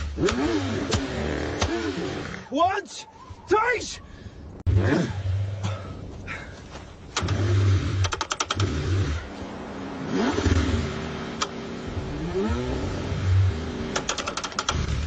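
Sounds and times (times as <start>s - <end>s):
car engine cranking and revving: 0.0s - 2.5s, 7.1s - 15.0s
sharp clicks: 8.0s - 8.7s, 13.9s - 14.9s.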